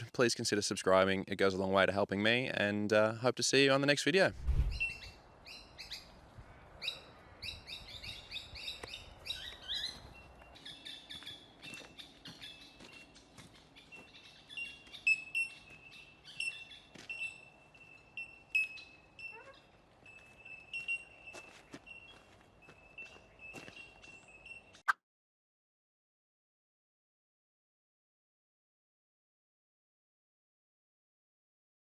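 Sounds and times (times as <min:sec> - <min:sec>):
birds chirping: 0:04.7 - 0:24.9.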